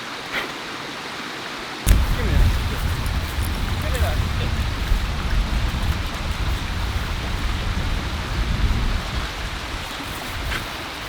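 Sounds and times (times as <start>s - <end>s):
heavy rain: 1.6s - 11.0s
low rumble: 1.9s - 10.5s.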